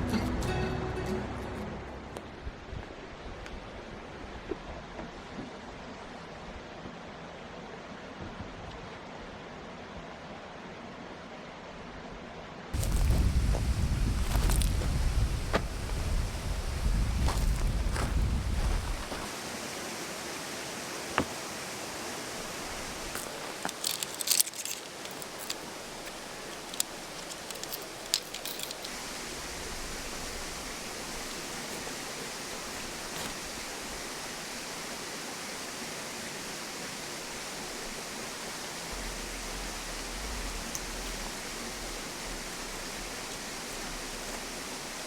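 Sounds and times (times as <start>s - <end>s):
stream babbling: 8.9s - 45.0s
low rumble: 12.8s - 19.1s, 38.9s - 43.3s
light sharp clinks and clicks: 23.2s - 29.0s.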